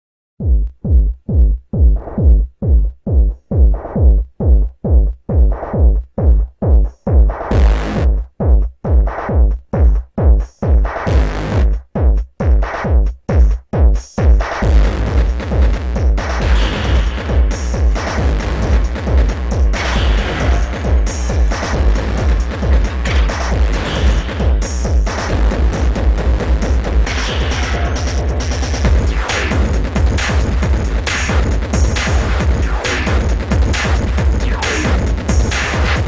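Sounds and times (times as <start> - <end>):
synth pulse with heavy bass: 7.2 - 8.3, 11.0 - 11.8, 14.5 - 36.0.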